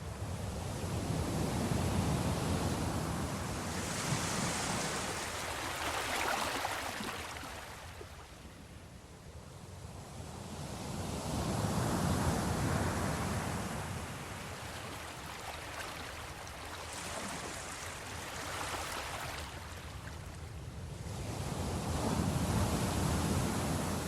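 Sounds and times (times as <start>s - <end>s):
ocean waves breaking: 3.0s - 8.3s, 12.6s - 20.4s.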